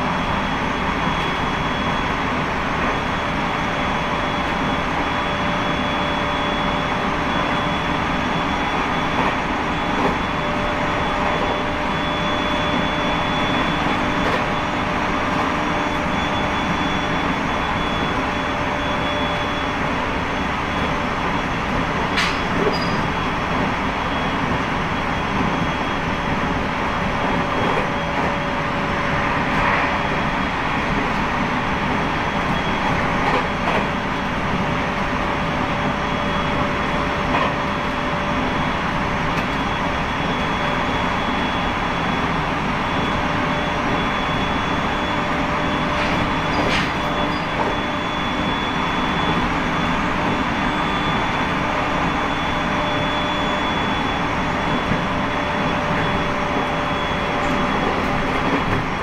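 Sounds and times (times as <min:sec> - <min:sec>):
steady high whine: 0:00.0 - 0:59.0
train wheels on rails: 0:00.0 - 0:59.0.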